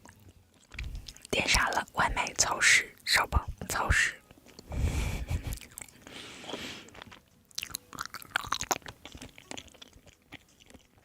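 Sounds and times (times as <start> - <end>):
person chewing food: 0.0 - 1.9, 4.2 - 11.0.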